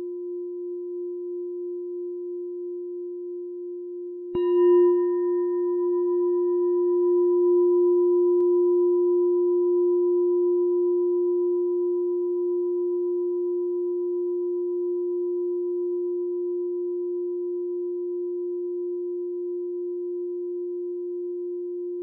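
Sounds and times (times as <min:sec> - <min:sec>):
meditation bell ringing: 0:04.3 - 0:12.2.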